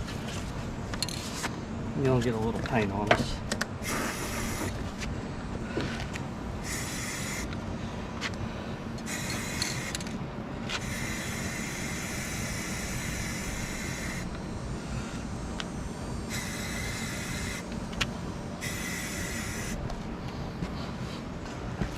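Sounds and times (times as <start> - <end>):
steady low hum: 0.0 - 21.9
paint spraying hiss: 3.8 - 5.0, 6.6 - 7.6, 9.0 - 10.1, 10.7 - 19.9.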